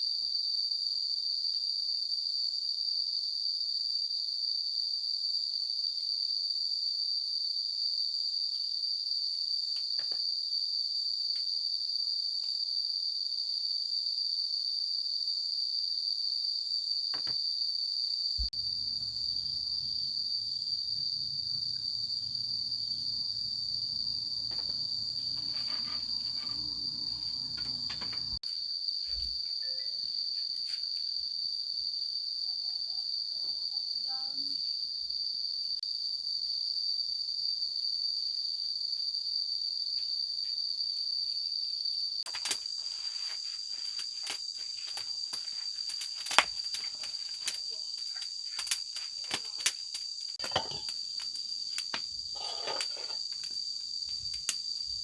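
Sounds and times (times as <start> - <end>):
insects shrilling: 42.2 - 55.0.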